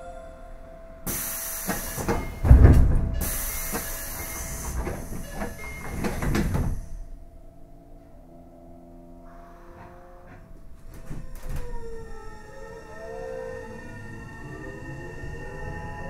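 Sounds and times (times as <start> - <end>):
train passing at speed: 0.0 - 7.3, 12.9 - 16.0
heavy wheel thumps: 1.1 - 7.2.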